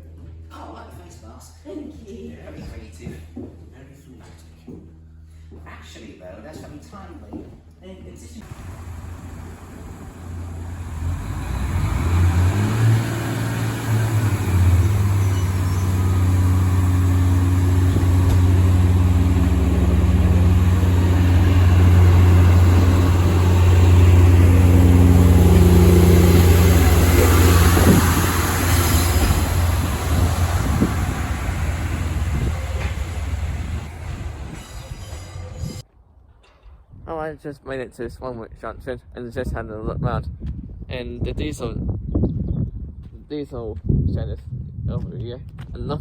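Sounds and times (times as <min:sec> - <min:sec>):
diesel locomotive engine drone: 0:08.4 - 0:35.8.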